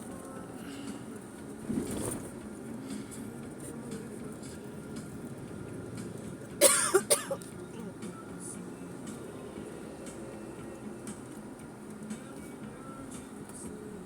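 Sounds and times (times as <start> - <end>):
car cabin rumble: 0.0 - 14.0
person coughing: 6.6 - 7.4.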